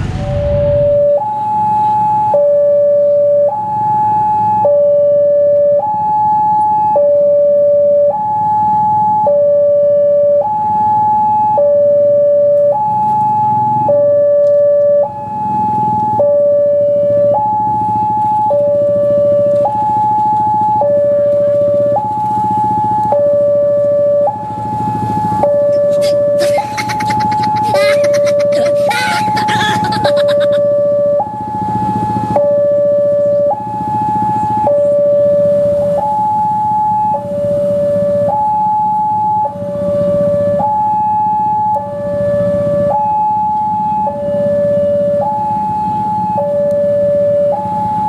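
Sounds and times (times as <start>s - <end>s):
two-tone level crossing alarm: 1.0s - 48.0s.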